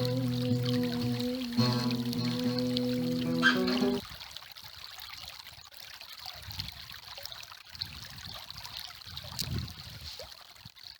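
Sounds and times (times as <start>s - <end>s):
river water flowing: 0.0s - 7.8s.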